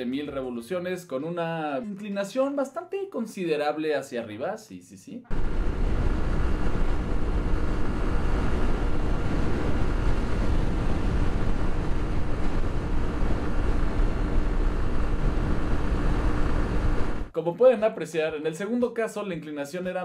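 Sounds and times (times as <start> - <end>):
motorcycle engine pulling steadily: 5.3 - 17.0
wind rushing over microphone: 5.3 - 17.3.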